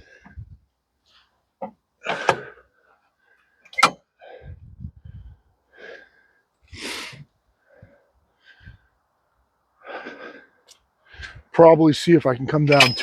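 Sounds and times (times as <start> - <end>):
breathy rush of air: 4.2 - 9.1.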